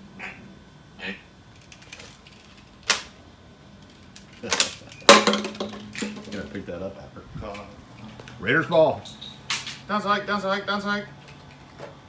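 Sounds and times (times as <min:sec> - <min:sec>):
small hard objects clattering: 0:03.8 - 0:06.6.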